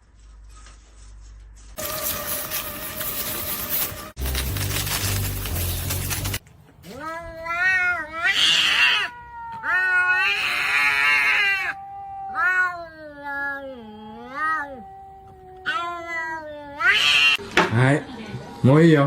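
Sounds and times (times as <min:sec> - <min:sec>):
cat yowling meows: 0:06.8 - 0:17.4.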